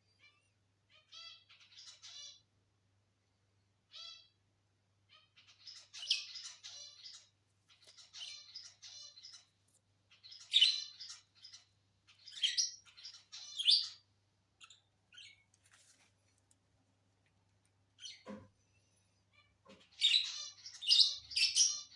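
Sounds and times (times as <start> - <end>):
lovebirds chirping: 0.0 - 2.5, 5.0 - 15.8, 17.9 - 21.9.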